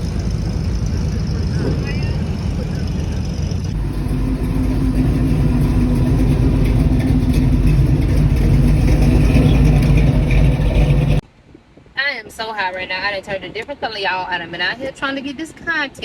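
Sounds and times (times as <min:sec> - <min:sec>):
car engine running: 0:00.0 - 0:11.2.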